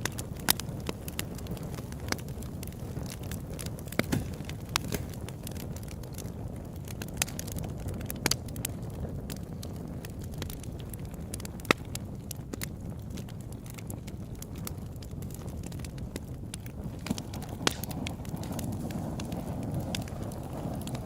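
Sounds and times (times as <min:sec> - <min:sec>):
burning wood crackling and popping: 0:00.0 - 0:21.0
campfire burning with low rush: 0:00.0 - 0:21.0.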